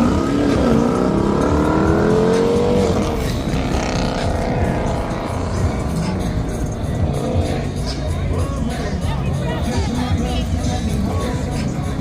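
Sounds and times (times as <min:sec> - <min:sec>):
car engine accelerating: 0:00.0 - 0:09.0
street traffic rumble: 0:00.0 - 0:12.0.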